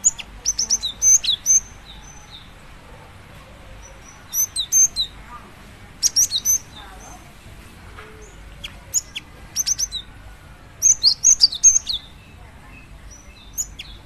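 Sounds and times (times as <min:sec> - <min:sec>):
bird chirping: 0:00.0 - 0:02.6, 0:03.6 - 0:05.2, 0:06.0 - 0:07.3, 0:08.1 - 0:10.2, 0:10.8 - 0:14.0.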